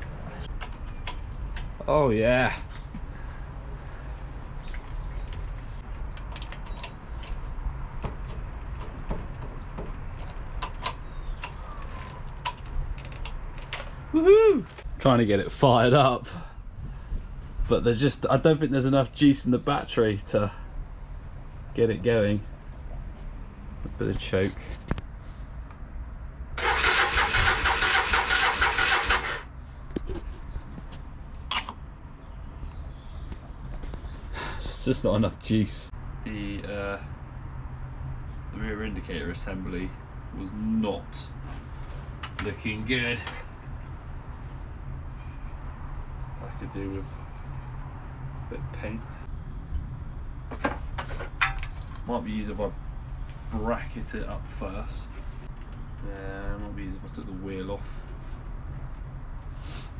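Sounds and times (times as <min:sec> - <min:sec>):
electric starter cranking engine: 0:26.6 - 0:29.5.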